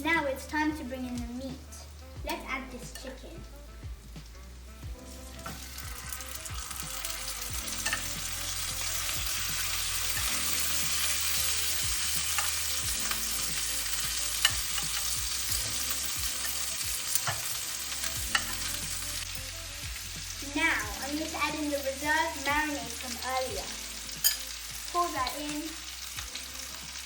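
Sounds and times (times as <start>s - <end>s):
chicken sizzling in hot oil: 0.0s - 27.0s.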